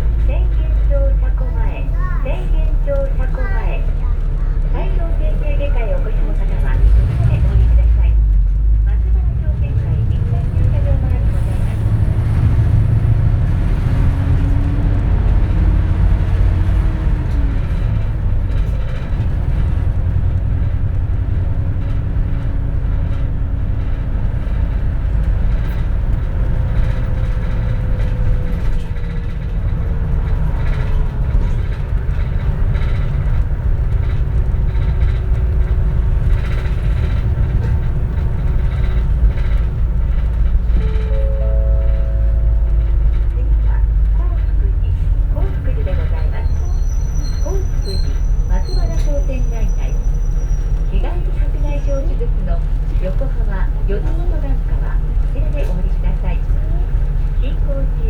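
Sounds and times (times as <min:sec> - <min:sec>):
bus engine rumble: 0:00.0 - 0:58.0
light rattles: 0:15.4 - 0:57.6.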